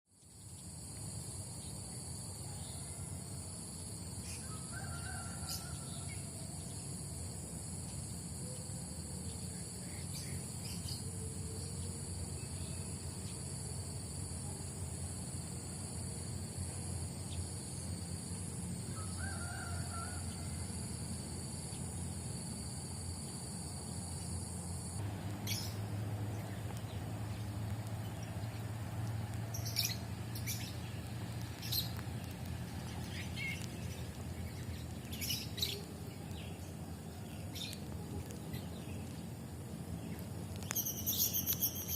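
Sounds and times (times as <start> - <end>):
high insect drone: 0.2 - 27.4, 28.1 - 31.0, 32.8 - 41.9
distant rooster crowing: 2.4 - 3.5, 4.4 - 6.7, 18.8 - 21.3.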